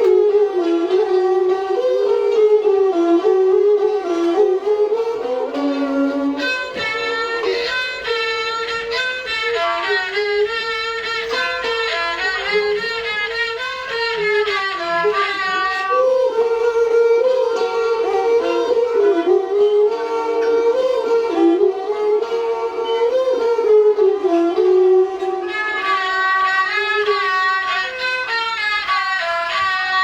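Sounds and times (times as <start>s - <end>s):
bowed string ensemble melody: 0.0s - 30.0s.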